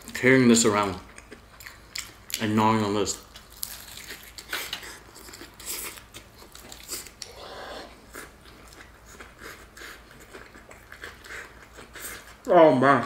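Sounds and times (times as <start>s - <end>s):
chewing crispy fried food: 0.0s - 12.7s
wet mouth sounds: 3.6s - 12.5s.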